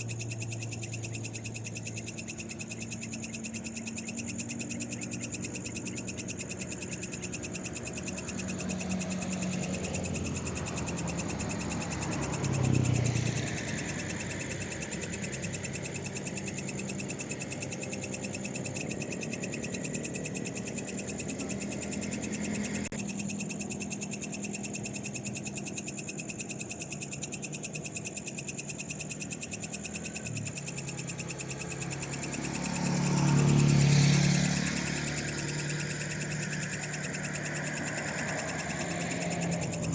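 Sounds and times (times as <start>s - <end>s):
frogs chorus: 0.0s - 39.9s
vehicles passing: 0.0s - 39.9s.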